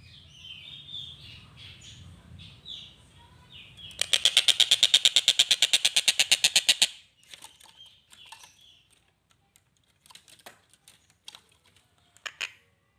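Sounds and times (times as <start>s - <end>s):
faint clicks and chirps: 3.8s - 6.2s, 7.2s - 12.6s.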